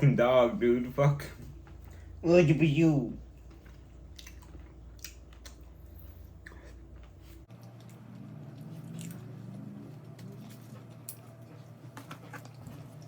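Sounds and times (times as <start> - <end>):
low background hum: 0.0 - 13.0
person chewing: 3.3 - 13.0.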